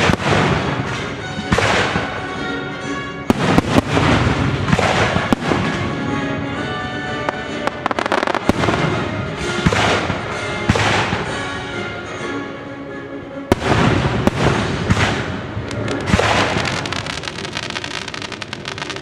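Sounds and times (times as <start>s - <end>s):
fireworks bangs: 0.0s - 2.2s, 3.3s - 11.4s, 13.5s - 19.0s
orchestral music: 0.0s - 19.0s
fireworks crackling: 3.3s - 11.2s, 13.5s - 19.0s.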